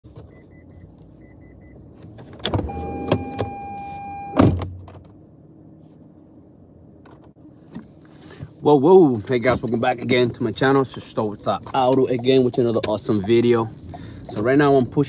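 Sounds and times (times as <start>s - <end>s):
power window motor whining: 2.5s - 4.4s
short faint beeps: 2.7s - 4.4s.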